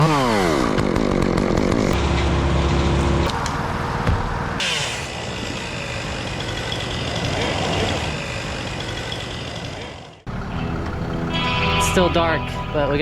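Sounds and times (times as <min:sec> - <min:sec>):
chainsaw engine: 0:00.0 - 0:03.2, 0:04.6 - 0:12.9
motor revving down: 0:04.6 - 0:11.6.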